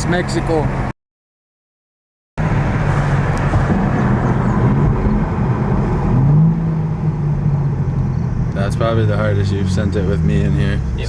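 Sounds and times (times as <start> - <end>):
car engine accelerating hard: 2.4 - 11.0.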